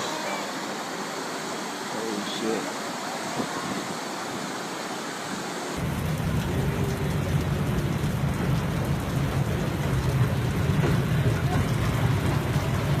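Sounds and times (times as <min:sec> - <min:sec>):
heavy rain: 0:00.0 - 0:13.0
strong low rumble: 0:05.8 - 0:13.0.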